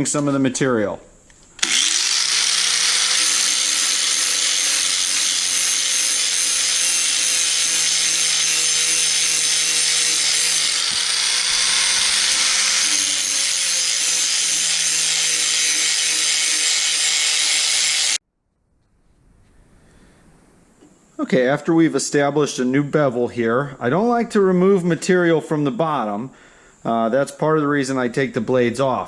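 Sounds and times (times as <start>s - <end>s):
angle grinder grinding steel: 1.4s - 18.2s.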